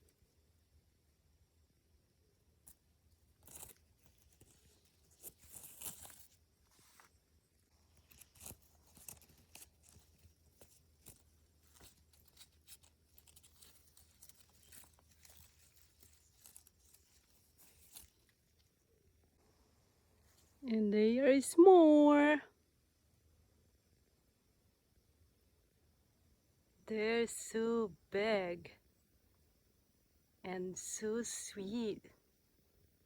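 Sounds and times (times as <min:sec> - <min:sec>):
bramble leaves rustling and snapping: 0:03.3 - 0:07.2, 0:07.8 - 0:18.8.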